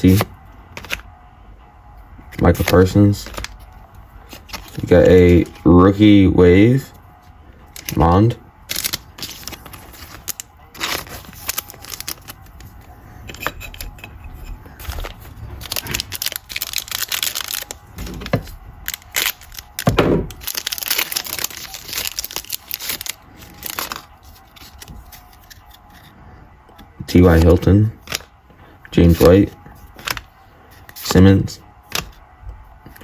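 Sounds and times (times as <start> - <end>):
plastic foil wrappers crinkling: 2.3 - 5.7, 7.7 - 25.8, 27.1 - 28.3, 29.1 - 31.2.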